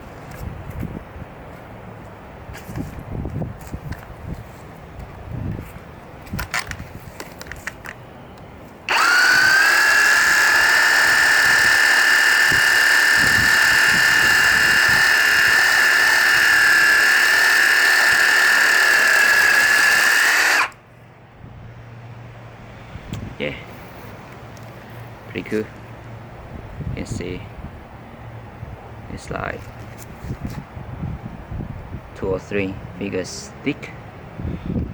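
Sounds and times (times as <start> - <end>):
reciprocating saw cutting wood: 8.9 - 20.8.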